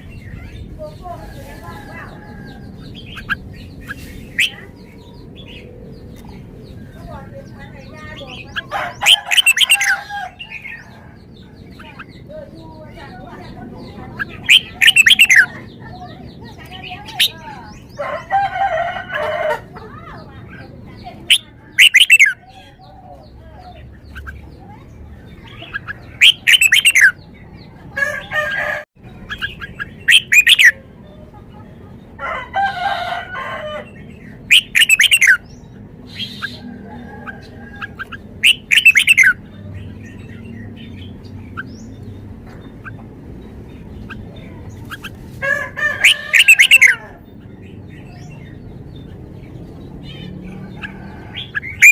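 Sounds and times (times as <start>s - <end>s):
bird singing whistled notes: 14.5s - 15.5s, 21.3s - 22.4s, 26.2s - 27.2s, 29.3s - 30.7s, 34.5s - 35.5s, 38.4s - 39.4s.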